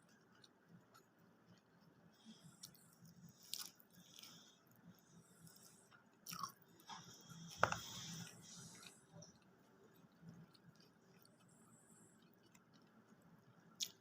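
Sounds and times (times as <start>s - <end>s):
chewing: 0.0s - 14.0s.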